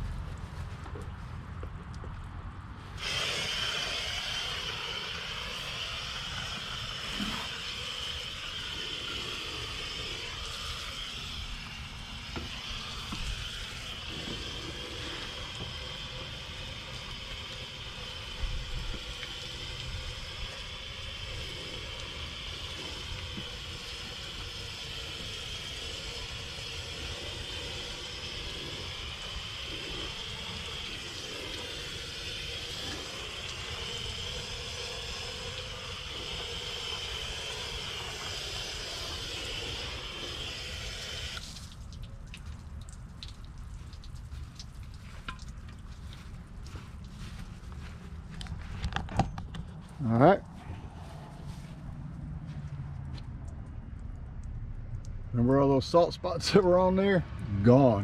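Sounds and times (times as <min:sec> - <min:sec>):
hose spraying water on hull: 0:02.8 - 0:49.2, 0:55.5 - 0:57.8.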